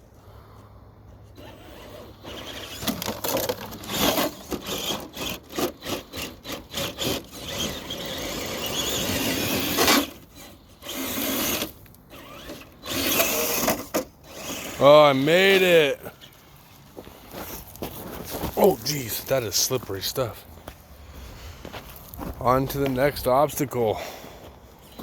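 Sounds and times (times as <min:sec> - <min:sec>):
tyres spinning in loose sand: 0:01.3 - 0:16.4
electric motor whining: 0:01.4 - 0:16.4.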